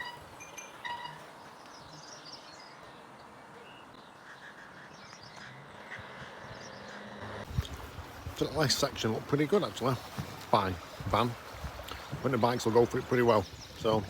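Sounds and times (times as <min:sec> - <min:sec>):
small birds chirping: 0:00.0 - 0:07.7, 0:11.8 - 0:14.0.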